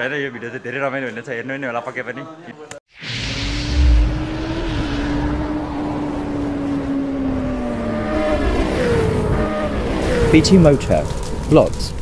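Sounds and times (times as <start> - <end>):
engine tone gliding down: 3.0 - 10.4
motorcycle engine: 3.0 - 11.3.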